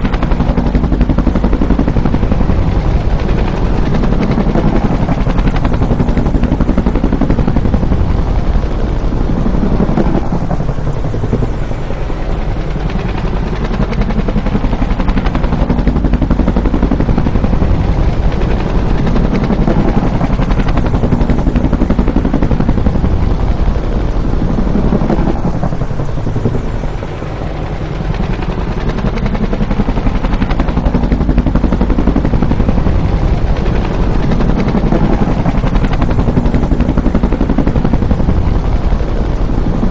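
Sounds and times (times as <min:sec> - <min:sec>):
helicopter engine running: 0:00.0 - 0:39.9
helicopter rotor beating: 0:00.0 - 0:39.9.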